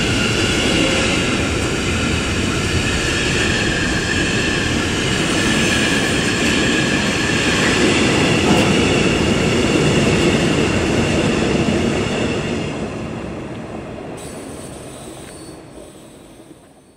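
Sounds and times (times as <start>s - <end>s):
freight train rumbling past: 0.0s - 16.9s
high wheel squeal: 14.2s - 16.9s.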